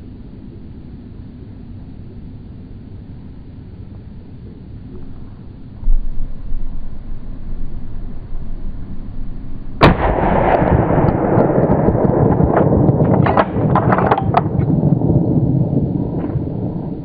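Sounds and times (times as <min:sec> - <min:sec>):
long rolling rumble: 0:00.0 - 0:17.0
gunshot: 0:09.8 - 0:14.4.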